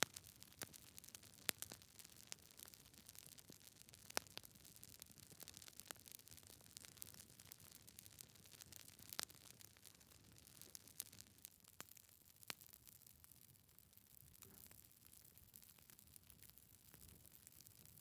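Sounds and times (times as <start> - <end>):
wood fire crackling: 0.0 - 13.1.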